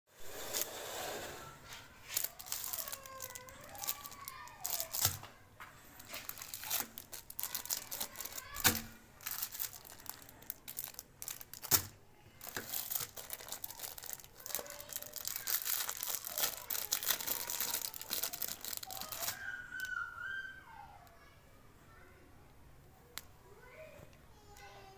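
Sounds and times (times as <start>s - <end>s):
faint squeaks: 0.3s - 8.6s
crinkling and crunching: 1.4s - 20.0s.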